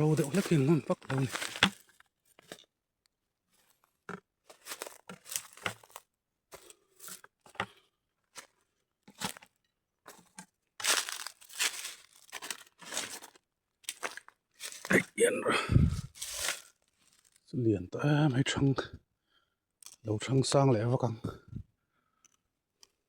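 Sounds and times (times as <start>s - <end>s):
tearing and crunching noises: 0.0s - 2.0s, 4.5s - 6.0s, 10.8s - 17.4s.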